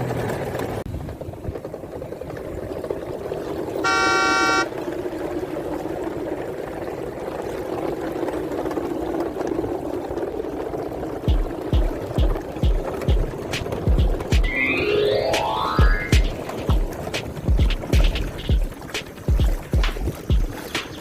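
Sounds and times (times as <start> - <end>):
engine rumble: 0.0 - 21.0
vehicle horn toot: 3.8 - 4.7.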